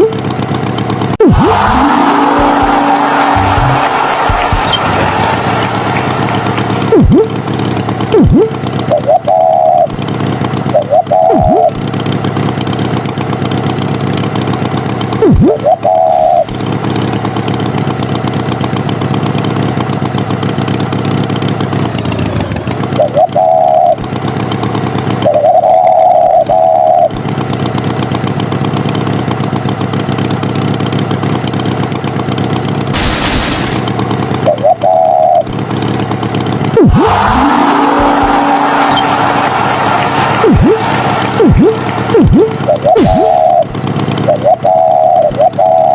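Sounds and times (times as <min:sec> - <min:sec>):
vehicle engine running: 0:00.0 - 0:45.9
swooping tones: 0:01.2 - 0:10.0, 0:10.6 - 0:11.9, 0:15.2 - 0:17.2, 0:36.7 - 0:45.9.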